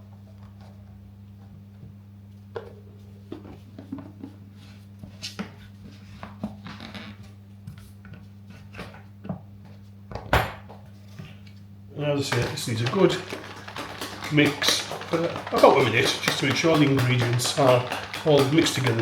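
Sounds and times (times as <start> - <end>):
plastic bottle clicks and knocks: 12.3 - 19.0.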